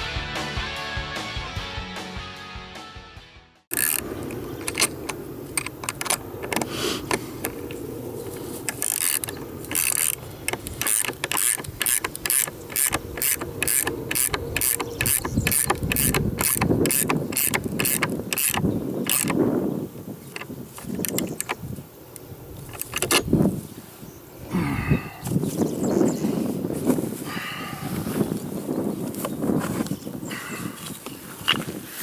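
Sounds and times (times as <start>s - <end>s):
ratchet wrench clicking: 3.7s - 7.8s, 8.6s - 19.4s.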